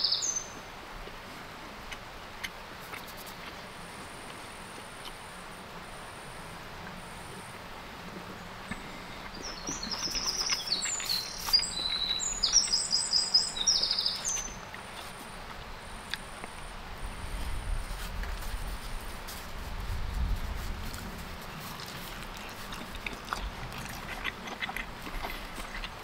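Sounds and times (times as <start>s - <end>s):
songbird singing trills: 0.0s - 0.6s, 8.4s - 14.7s
outdoor background noise: 0.0s - 26.0s.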